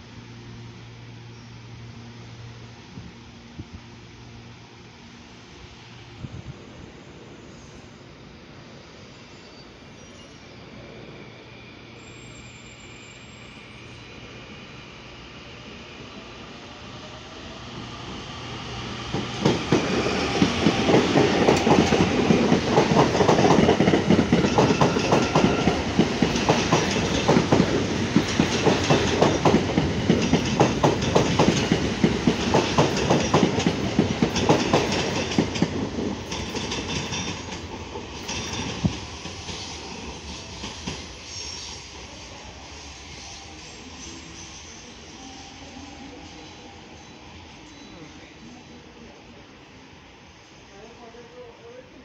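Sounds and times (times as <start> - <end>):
train wheels clattering: 19.0 - 41.7.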